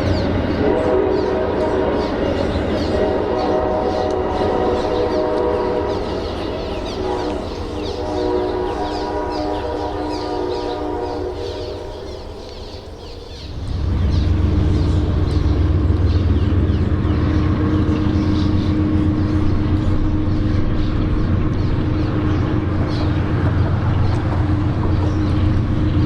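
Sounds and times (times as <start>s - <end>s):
birds chirping: 0.0s - 26.0s
diesel locomotive rumbling: 0.0s - 26.0s.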